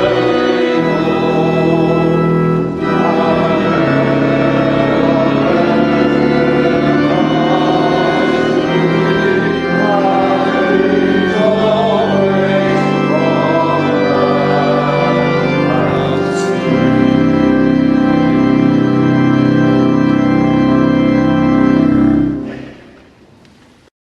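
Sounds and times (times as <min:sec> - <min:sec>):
voices singing: 0:00.0 - 0:17.6
church organ playing chords: 0:00.0 - 0:22.9.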